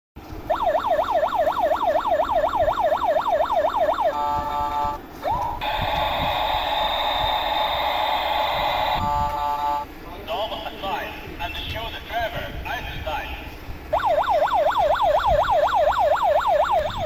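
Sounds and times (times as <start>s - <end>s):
toy warbling siren: 0.5s - 9.8s, 13.9s - 17.0s
long buzzing tone: 5.6s - 9.8s.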